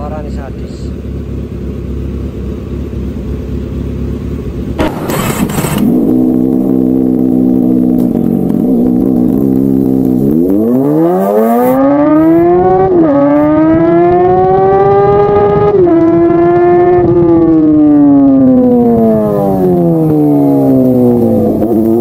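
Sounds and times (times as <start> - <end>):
motorcycle engine revving: 3.0 - 22.0.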